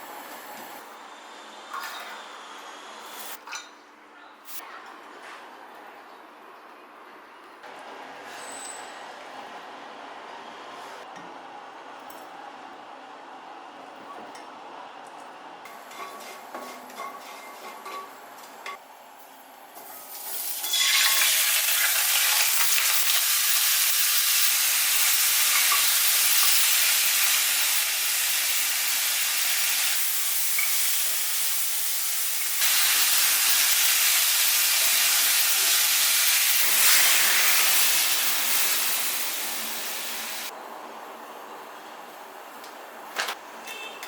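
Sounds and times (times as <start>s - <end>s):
food sizzling in a hot pan: 19.8s - 40.5s.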